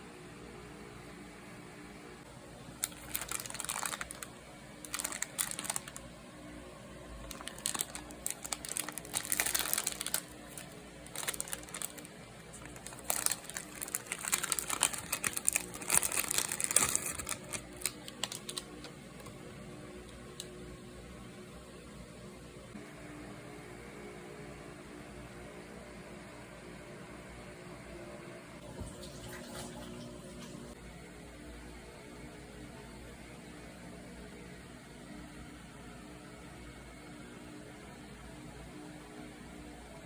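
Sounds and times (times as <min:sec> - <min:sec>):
plastic packaging crinkling: 0:02.7 - 0:06.0, 0:07.1 - 0:19.5.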